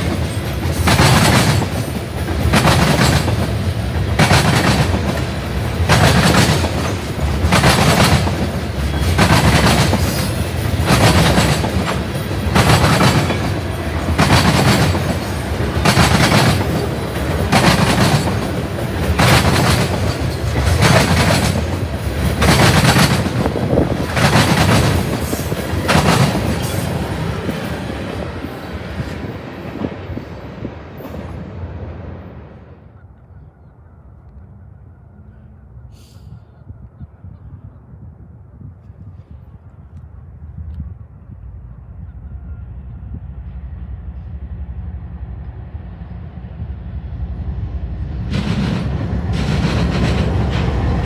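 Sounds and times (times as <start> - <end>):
train wheels clacking over track: 0.0 - 31.4, 48.2 - 51.0
rumble of train: 0.0 - 51.0.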